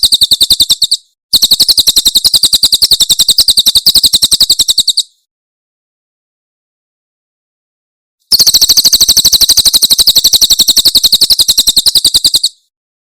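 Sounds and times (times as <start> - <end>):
bird chirping rapidly: 0.0 - 5.2, 8.3 - 12.7.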